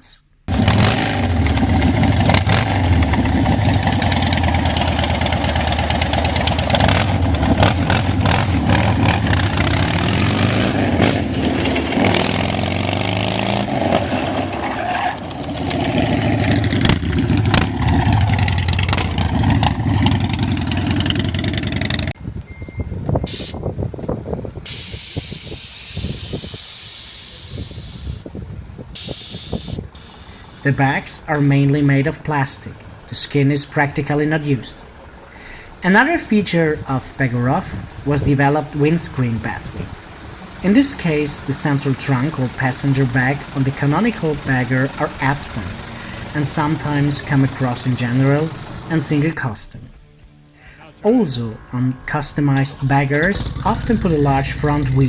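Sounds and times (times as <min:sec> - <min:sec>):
motorcycle engines running: 0:00.5 - 0:22.4, 0:39.2 - 0:49.4, 0:50.0 - 0:55.0
steady spraying hiss: 0:24.7 - 0:28.2, 0:29.0 - 0:32.1.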